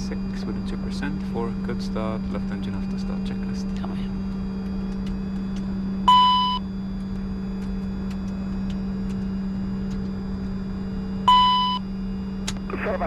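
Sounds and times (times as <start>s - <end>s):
jet engines cockpit hum: 0.0s - 13.0s
electronic two-tone beep: 6.1s - 6.6s, 11.3s - 11.8s.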